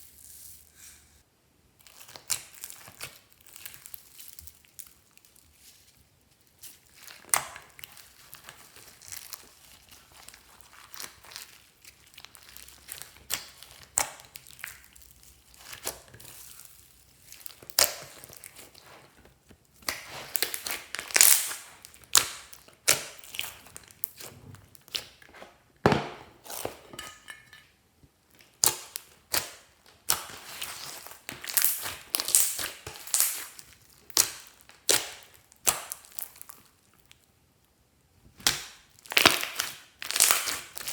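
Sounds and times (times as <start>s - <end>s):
slime squishing with clicks and pops: 17.2s - 18.8s, 19.7s - 25.2s, 28.3s - 37.1s, 38.3s - 40.9s.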